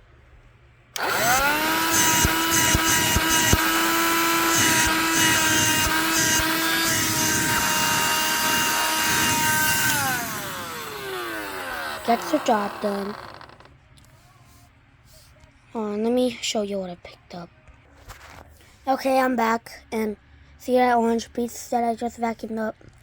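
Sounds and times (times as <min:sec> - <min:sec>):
handheld vacuum motor whine: 0:01.0 - 0:13.7
sharp clicks: 0:01.0 - 0:13.7.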